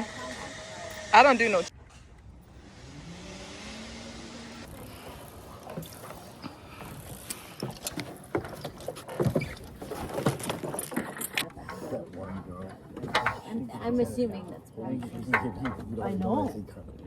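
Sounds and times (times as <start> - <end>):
zip line trolley whining: 0.0 - 1.7, 2.5 - 7.9.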